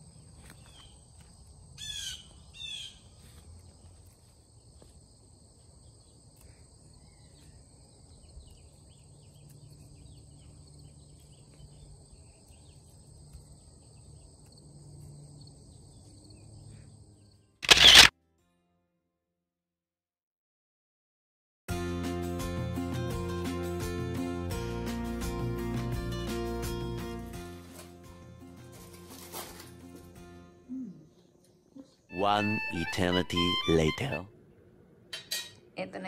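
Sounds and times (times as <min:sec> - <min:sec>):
songbird chirping: 0:00.0 - 0:04.9, 0:05.6 - 0:17.4, 0:30.6 - 0:34.7.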